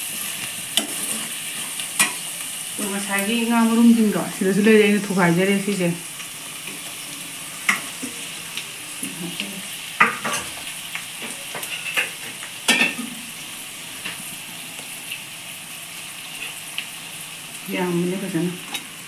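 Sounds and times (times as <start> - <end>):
fish roe sizzling in oil: 0.0 - 19.0
metal utensils clinking on pan: 2.0 - 2.2, 10.0 - 10.6, 11.2 - 13.2.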